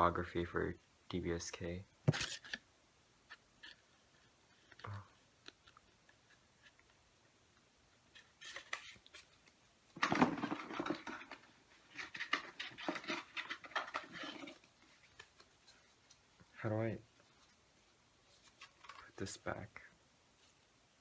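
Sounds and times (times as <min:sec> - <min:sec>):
paper and plastic rustling: 0:08.1 - 0:16.2, 0:17.2 - 0:19.7.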